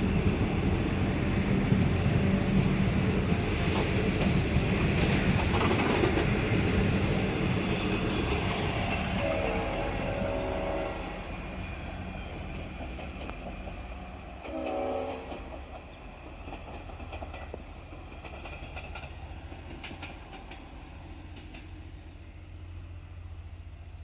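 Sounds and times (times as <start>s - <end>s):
low rumble of train: 0.0s - 24.0s
wheels clicking over rails: 3.7s - 9.2s, 15.2s - 21.8s
train horn: 9.1s - 11.4s, 14.4s - 15.5s.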